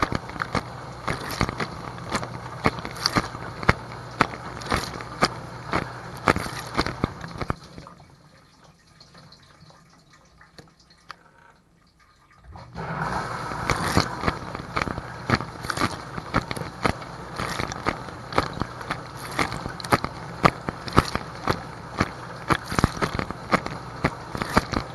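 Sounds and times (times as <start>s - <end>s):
dishwasher water spraying: 0.0s - 7.9s, 12.4s - 24.9s.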